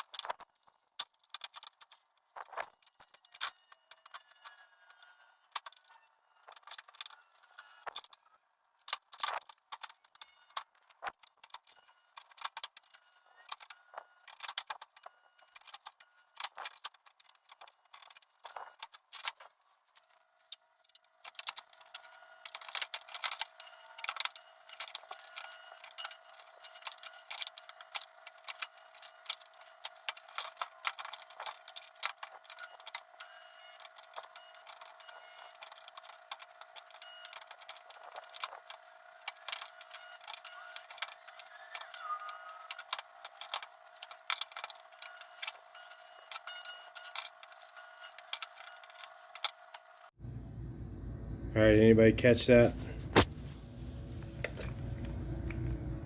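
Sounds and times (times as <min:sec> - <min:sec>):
faint steady hum: 0:50.2 - 0:56.0.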